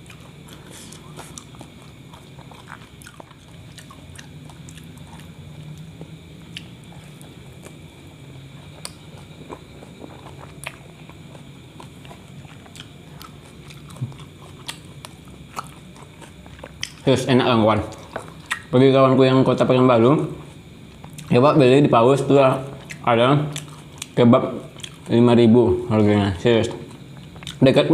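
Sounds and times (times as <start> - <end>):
person chewing food: 0.0 - 17.1, 17.9 - 18.7, 20.4 - 21.3, 22.7 - 25.1, 26.8 - 27.6
steady low hum: 0.0 - 27.9.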